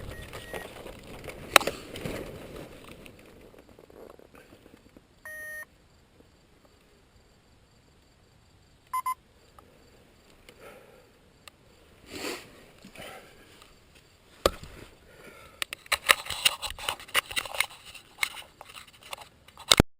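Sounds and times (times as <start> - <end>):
clicks and rustling handling noise: 0.0 - 5.1, 15.5 - 19.9
short electronic beeps: 5.2 - 5.7, 8.9 - 9.2.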